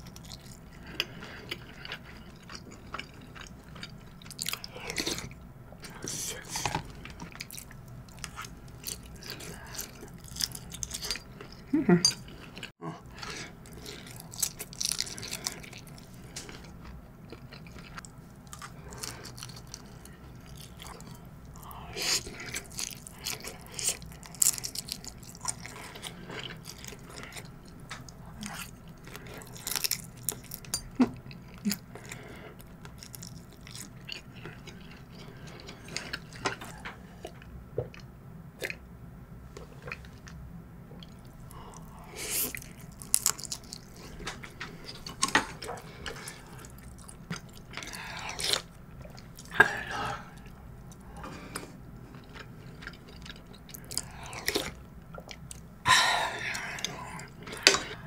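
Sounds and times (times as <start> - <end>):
person chewing food: 0.0 - 38.8, 39.6 - 58.0.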